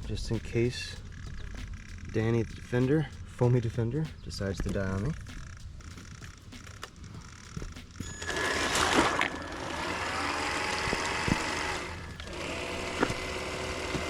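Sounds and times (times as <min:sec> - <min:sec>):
electric motor whining: 0:05.9 - 0:14.0.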